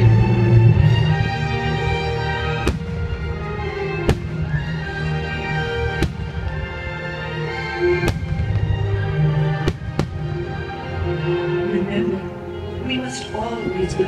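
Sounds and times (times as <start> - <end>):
music soundtrack: 0.0 - 14.0
fireworks bursting: 2.6 - 3.3, 4.0 - 4.8, 5.8 - 7.0, 8.0 - 10.6.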